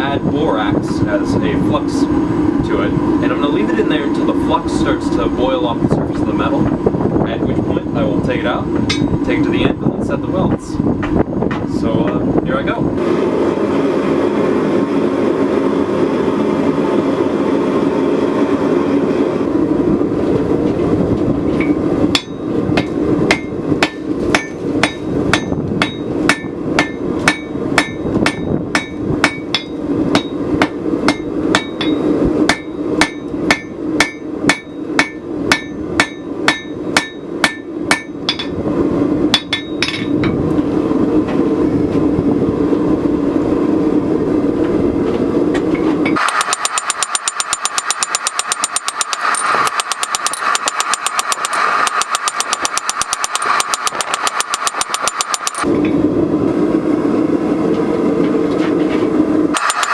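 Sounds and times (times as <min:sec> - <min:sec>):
steady forge noise: 0:00.0 - 0:59.9
hammer blows ringing on anvil: 0:08.9 - 0:09.2, 0:21.6 - 0:38.6, 0:39.4 - 0:40.4.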